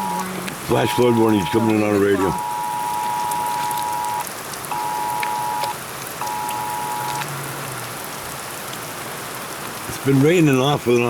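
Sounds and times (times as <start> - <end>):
rain falling on surfaces: 0.0 - 11.0
alert beeps: 0.8 - 7.2
two-pitch alert tone: 0.8 - 7.2.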